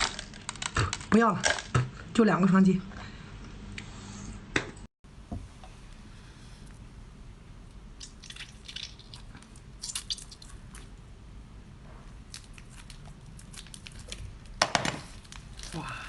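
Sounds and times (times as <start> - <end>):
wet mouth eating sounds: 8.0 - 11.0.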